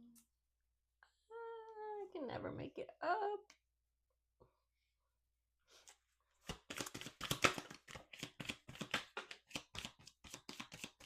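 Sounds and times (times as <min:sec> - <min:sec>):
cards being shuffled: 0:06.4 - 0:11.0.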